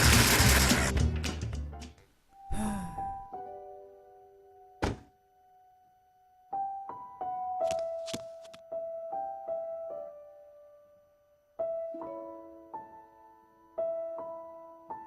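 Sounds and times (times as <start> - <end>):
dull thump: 4.8 - 5.1
piano notes: 11.6 - 15.0.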